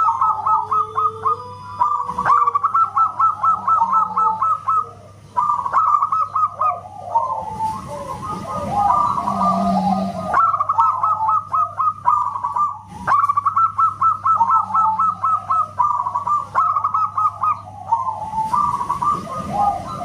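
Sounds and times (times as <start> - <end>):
dove cooing: 0.0 - 20.0.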